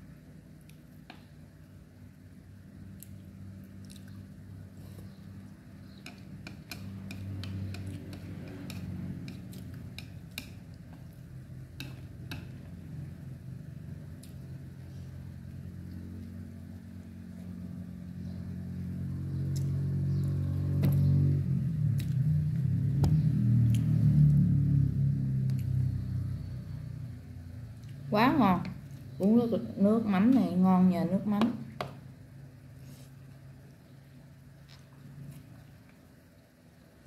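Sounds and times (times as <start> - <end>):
chewing with wet mouth clicks: 3.0 - 4.3, 5.5 - 11.2, 21.9 - 22.3.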